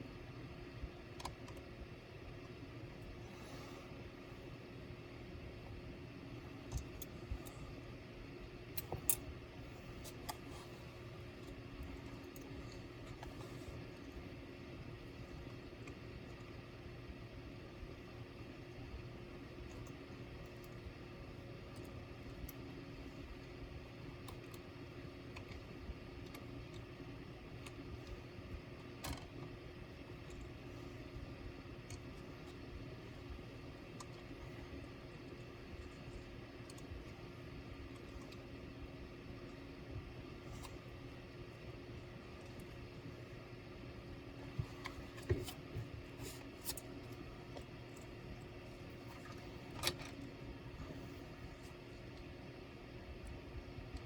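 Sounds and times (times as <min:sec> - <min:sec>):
steady low hum: 0:00.0 - 0:54.0
small clicks and taps of parts: 0:01.1 - 0:01.7, 0:06.6 - 0:07.6, 0:08.7 - 0:09.3, 0:21.6 - 0:24.7, 0:25.3 - 0:29.6, 0:30.2 - 0:38.5.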